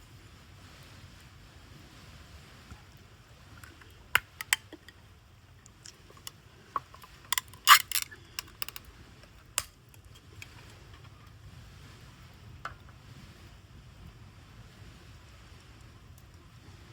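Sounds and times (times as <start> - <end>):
small hard objects clicking: 3.6 - 5.0, 5.6 - 8.9.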